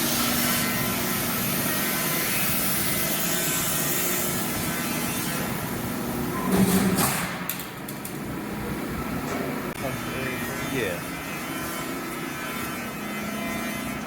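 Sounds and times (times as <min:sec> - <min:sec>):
shop machinery hissing: 0:00.0 - 0:07.4.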